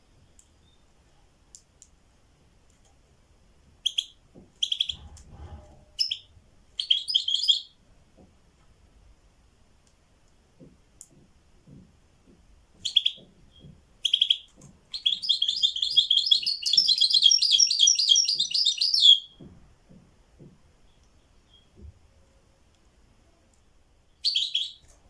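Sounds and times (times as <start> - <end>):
songbird singing: 6.0 - 7.8, 12.8 - 19.5, 20.8 - 21.8, 24.1 - 24.9
faint low taps: 10.6 - 13.9, 19.4 - 22.1.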